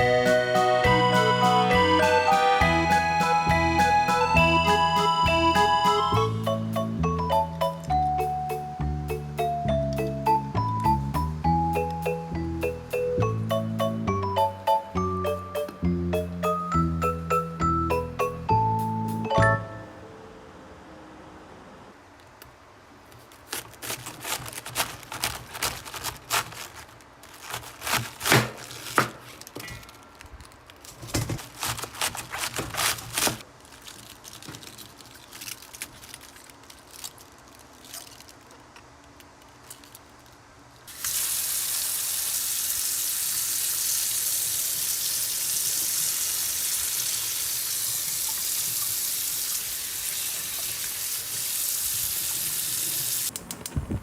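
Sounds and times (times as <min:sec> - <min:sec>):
steady hiss: 0:40.8 - 0:54.0.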